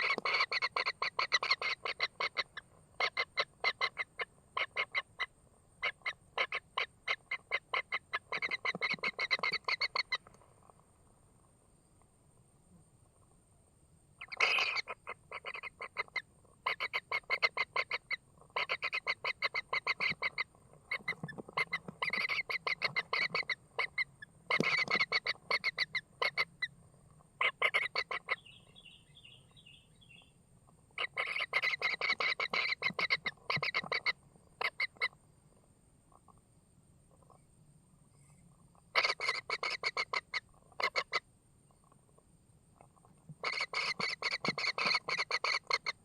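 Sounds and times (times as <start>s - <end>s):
kingfisher rattling calls: 0.0s - 5.0s, 14.2s - 26.5s, 31.0s - 35.0s, 43.4s - 46.0s.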